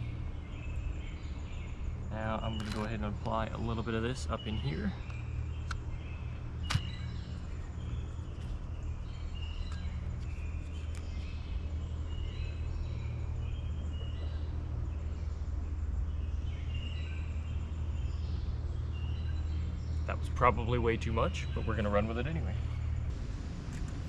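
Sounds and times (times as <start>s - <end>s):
small birds chirping: 0.0s - 23.2s
steady low hum: 0.0s - 24.0s
sharp click: 2.6s - 3.0s, 6.7s - 7.0s.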